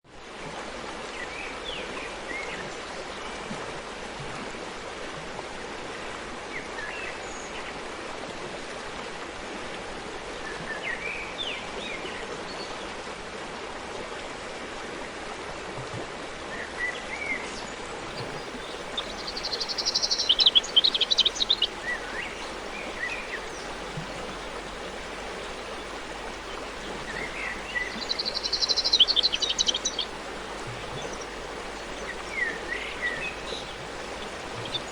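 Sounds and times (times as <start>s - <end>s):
birds chirping: 18.1s - 34.9s
forest stream rushing: 18.1s - 34.9s
bird singing rapid high trill: 18.2s - 34.9s.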